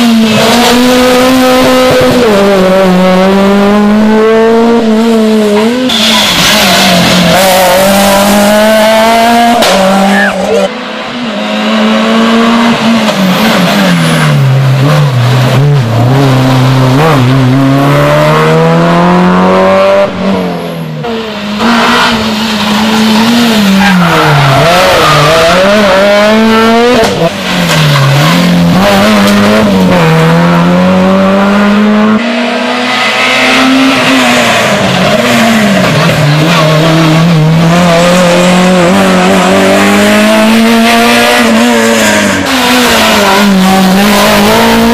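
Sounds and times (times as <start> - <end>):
rally car engine revving: 0.0 - 44.9
tyre squeal: 5.6 - 7.4.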